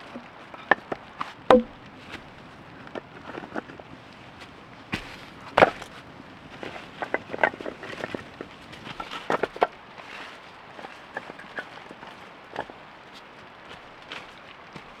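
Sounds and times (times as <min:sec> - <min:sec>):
knocks and clacks: 0:01.5 - 0:01.8.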